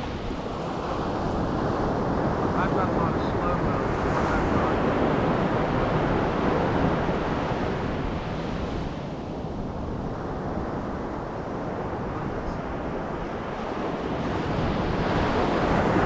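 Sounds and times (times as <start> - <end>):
ocean surf breaking: 0.0 - 16.0
wind buffeting microphone: 0.0 - 16.0.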